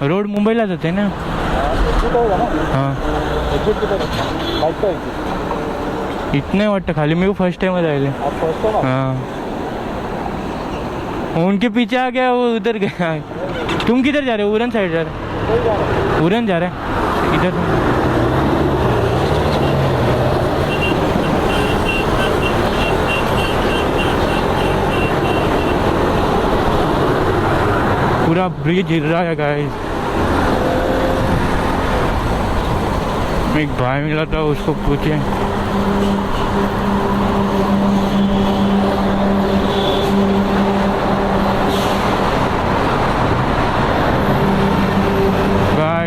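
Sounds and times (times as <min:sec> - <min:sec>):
road and wind noise: 0:00.0 - 0:46.0
motorcycle engine hum: 0:17.8 - 0:28.3, 0:29.7 - 0:45.8.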